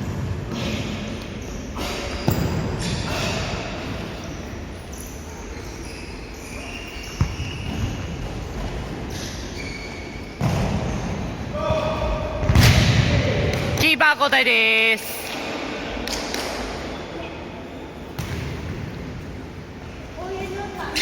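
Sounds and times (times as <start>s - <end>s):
players moving in a hall: 0.0s - 21.0s
sharp ball kick: 10.4s - 10.8s, 12.4s - 13.8s, 18.2s - 18.8s.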